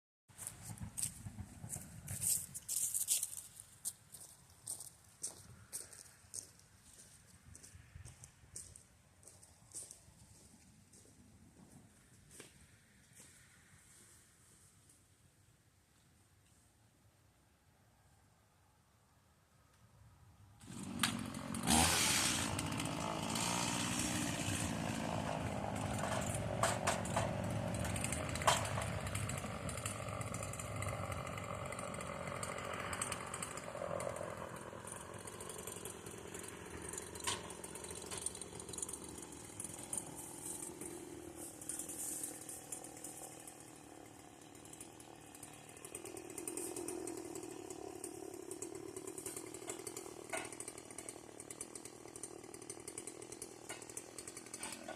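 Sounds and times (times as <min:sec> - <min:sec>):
chainsaw running: 0:00.4 - 0:03.6, 0:20.6 - 0:54.9.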